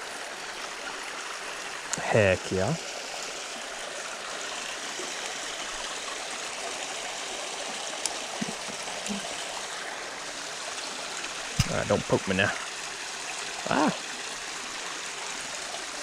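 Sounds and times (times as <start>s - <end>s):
creek water flowing: 0.0s - 16.0s.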